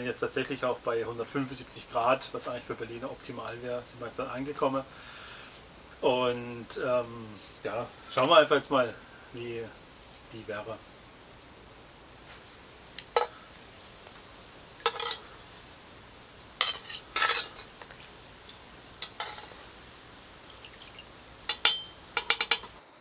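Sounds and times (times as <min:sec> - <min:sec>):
cutlery and dishes clinking: 0:14.8 - 0:15.6, 0:16.6 - 0:18.0, 0:19.0 - 0:19.6, 0:21.5 - 0:22.8.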